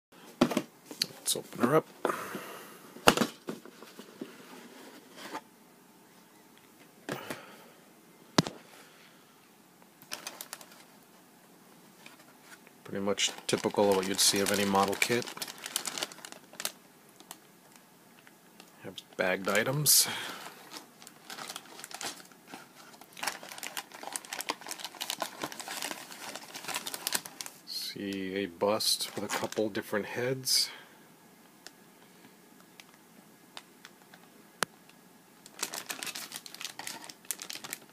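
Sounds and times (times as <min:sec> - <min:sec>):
plastic bags crinkling: 0:10.0 - 0:11.0, 0:12.0 - 0:17.8, 0:18.6 - 0:27.8, 0:29.0 - 0:29.7, 0:35.4 - 0:37.9.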